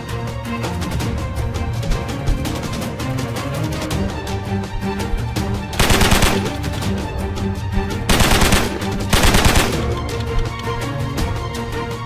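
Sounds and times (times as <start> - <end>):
background music: 0.0 - 12.0
machine-gun fire: 5.8 - 6.6, 8.1 - 10.0.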